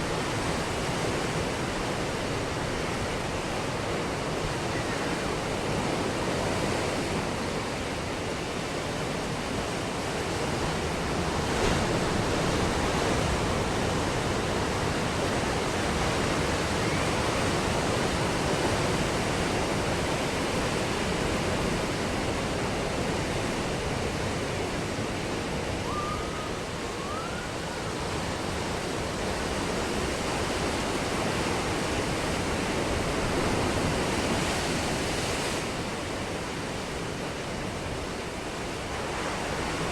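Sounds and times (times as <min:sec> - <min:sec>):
ocean surf breaking: 0:00.0 - 0:39.9
faint wavering call: 0:25.8 - 0:28.0.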